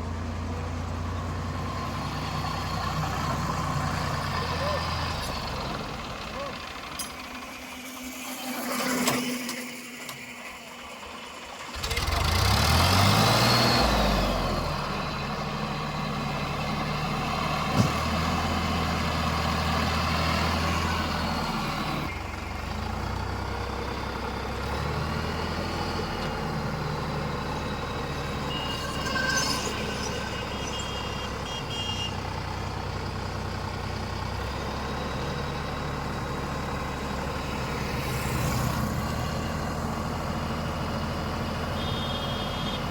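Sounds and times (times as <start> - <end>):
diesel engine revving: 0.0 - 8.6, 9.8 - 42.2
high beeping: 27.4 - 32.0.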